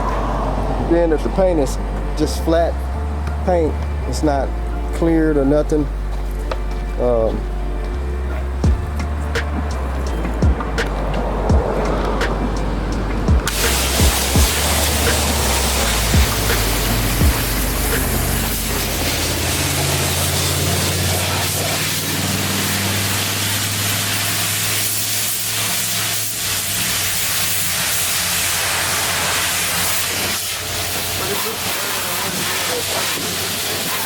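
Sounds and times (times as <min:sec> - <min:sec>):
low motor hum: 0:00.0 - 0:24.5
water spraying from wash nozzle: 0:13.5 - 0:34.0.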